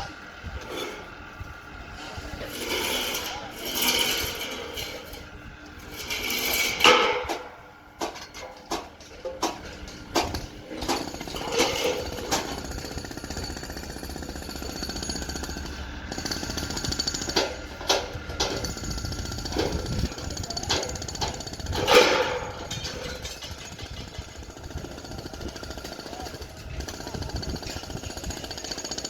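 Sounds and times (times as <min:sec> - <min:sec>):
power tool rattling: 0:02.5 - 0:29.0
sharp knocks and clanks: 0:05.8 - 0:12.9, 0:16.2 - 0:24.5.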